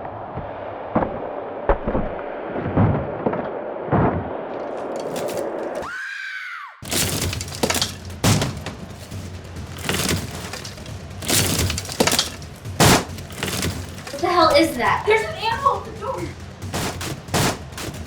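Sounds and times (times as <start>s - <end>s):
crashing and breaking clatter: 4.6s - 5.9s, 6.8s - 18.0s
heavy thuds: 4.9s - 5.8s, 6.8s - 18.0s.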